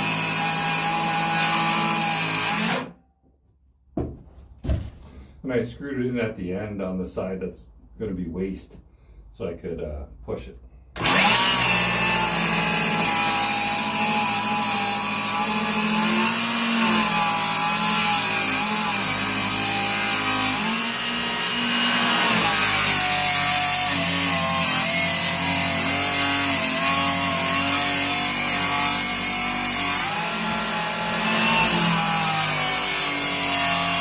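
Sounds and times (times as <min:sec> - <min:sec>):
circular saw cutting wood: 0:00.0 - 0:03.0, 0:11.0 - 0:34.0.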